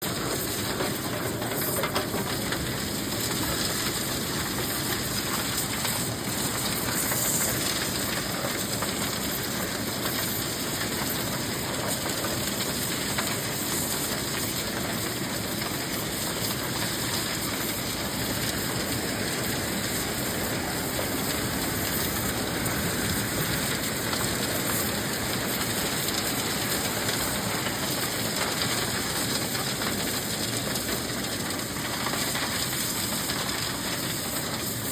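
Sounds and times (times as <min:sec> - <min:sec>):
suction truck hissing: 0:13.4 - 0:29.2.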